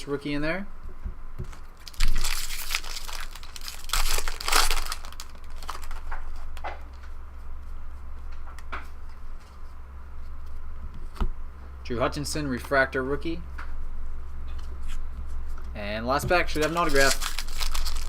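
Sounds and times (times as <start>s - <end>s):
foil wrapper tearing and crinkling: 1.8s - 6.2s, 16.5s - 18.0s
cards clicking and rustling: 1.9s - 6.4s, 16.5s - 18.0s.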